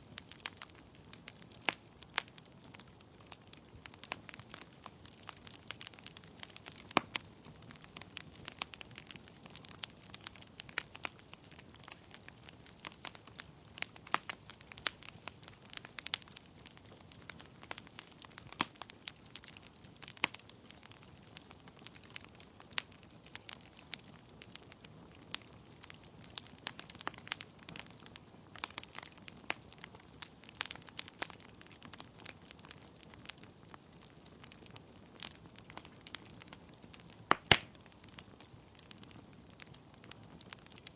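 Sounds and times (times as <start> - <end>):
logs crackling and popping: 0.0 - 40.9.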